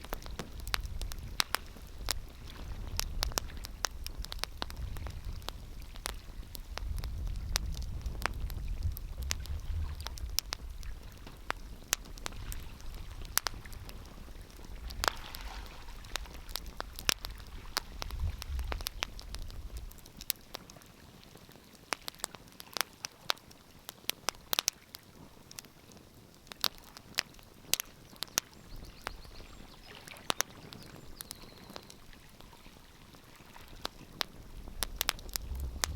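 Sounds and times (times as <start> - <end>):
wood fire crackling and popping: 0.0 - 35.9
low rumble: 35.2 - 35.9.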